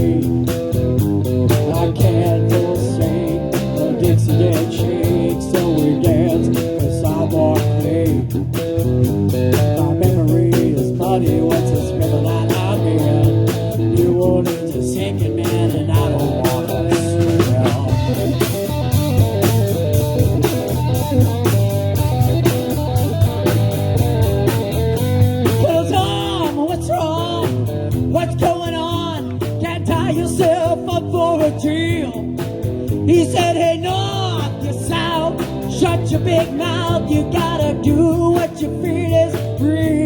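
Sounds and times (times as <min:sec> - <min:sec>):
bass guitar: 0:00.0 - 0:40.0
drum kit with cymbals: 0:00.0 - 0:40.0
electric guitars: 0:00.0 - 0:40.0.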